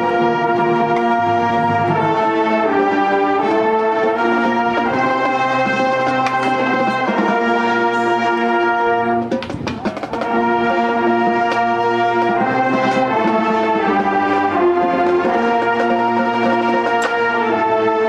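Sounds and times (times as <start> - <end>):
brass section playing chords: 0.0 - 18.0
percussive hits: 9.2 - 13.4.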